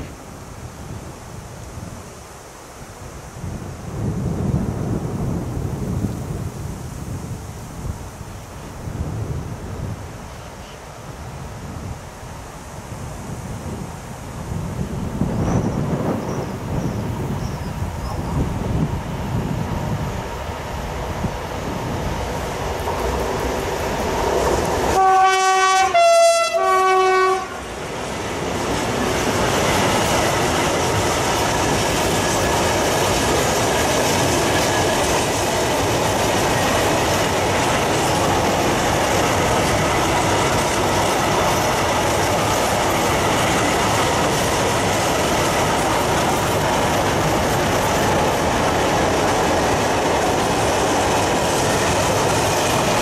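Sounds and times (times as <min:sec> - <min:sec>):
locomotive horn blasts: 0:24.9 - 0:27.6
train wagons rolling and clattering: 0:27.8 - 0:53.0.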